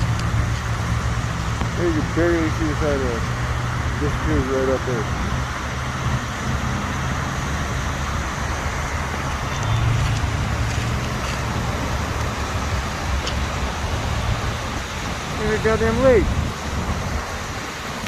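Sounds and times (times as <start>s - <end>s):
low vehicle rumble: 0.0s - 18.0s
wind: 0.0s - 18.0s.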